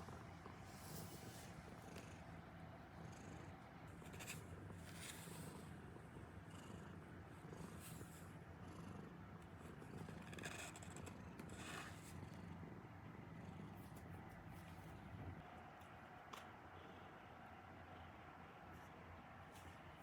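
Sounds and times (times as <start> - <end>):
cat purring: 0.0 - 15.4.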